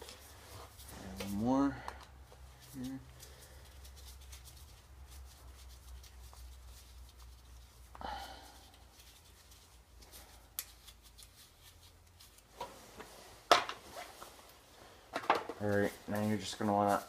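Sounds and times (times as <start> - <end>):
scrape: 0.0 - 1.5
faint handling noises: 0.0 - 8.0, 8.6 - 17.0.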